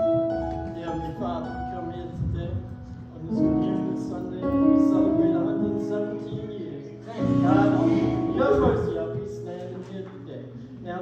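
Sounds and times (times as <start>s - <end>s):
church music held chords: 0.1s - 10.5s
voices singing: 7.0s - 9.3s.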